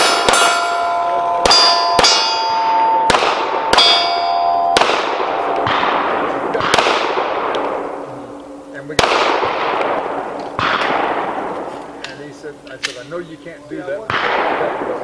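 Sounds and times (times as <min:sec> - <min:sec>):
steel target plates clanging: 0:00.0 - 0:06.7
pistol shots: 0:00.0 - 0:13.2, 0:14.0 - 0:15.0.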